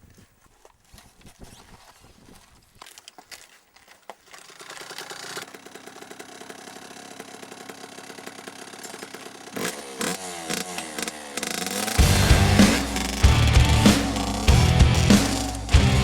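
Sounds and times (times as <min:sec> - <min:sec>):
two-stroke motorbike engine revving: 0:04.6 - 0:16.0.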